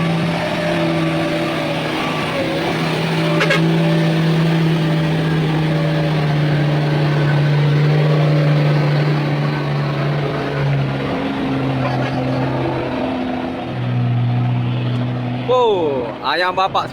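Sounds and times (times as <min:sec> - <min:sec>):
diesel truck engine running: 0:00.0 - 0:16.9.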